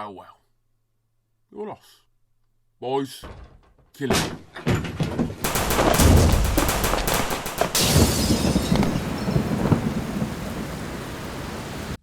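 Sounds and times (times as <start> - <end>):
rapid gunfire: 5.4 - 9.0
steady rain: 5.5 - 12.0.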